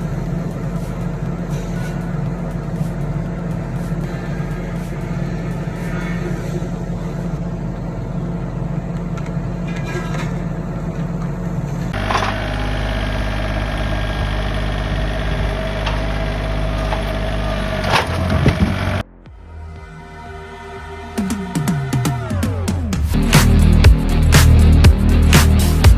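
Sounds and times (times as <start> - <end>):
engine with steady whine: 0.0 - 19.0
heavy engine running: 0.0 - 19.0.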